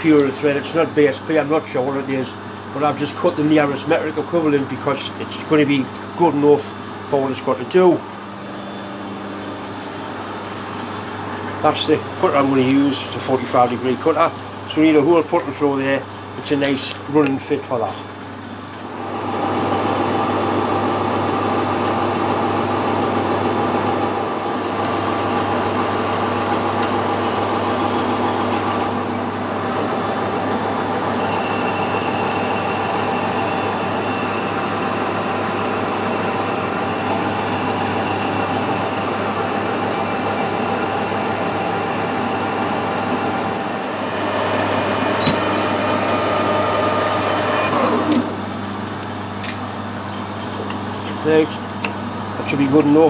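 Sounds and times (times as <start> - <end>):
machine tool humming: 19.0 - 48.7.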